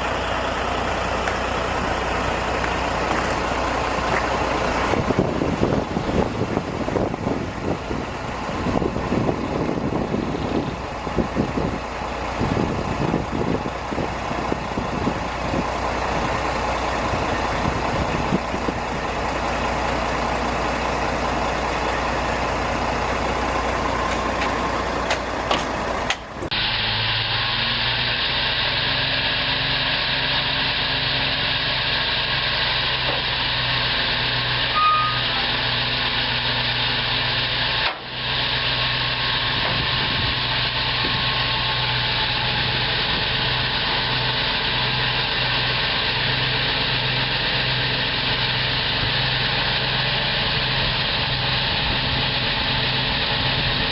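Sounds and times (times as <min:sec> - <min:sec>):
engine humming: 0:00.0 - 0:53.9
truck engines rattling: 0:00.0 - 0:53.9.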